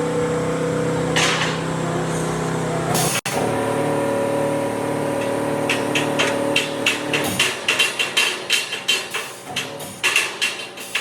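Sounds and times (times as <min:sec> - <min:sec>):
engine running: 0:00.0 - 0:10.2
hammer strikes: 0:05.2 - 0:11.0.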